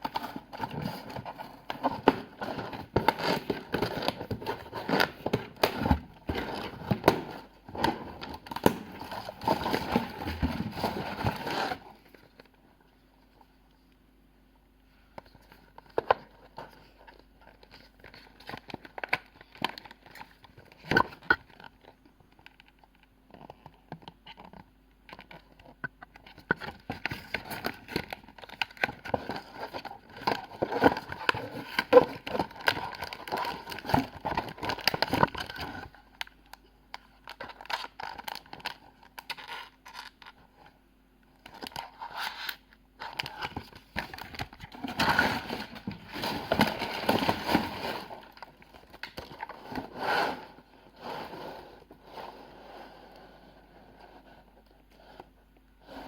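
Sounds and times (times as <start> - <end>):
packaging rustling and clicking: 15.5 - 36.3, 41.4 - 49.8.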